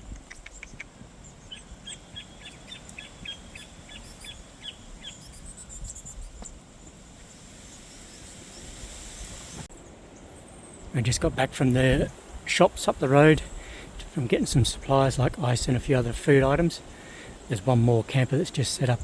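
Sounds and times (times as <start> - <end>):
small birds chirping: 0.0 - 6.6
low wind rumble: 0.0 - 19.0.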